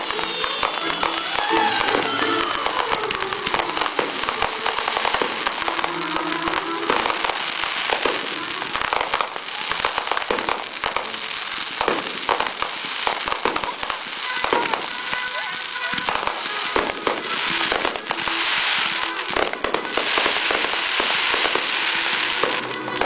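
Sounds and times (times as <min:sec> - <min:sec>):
fireworks crackling and popping: 0:00.0 - 0:23.0.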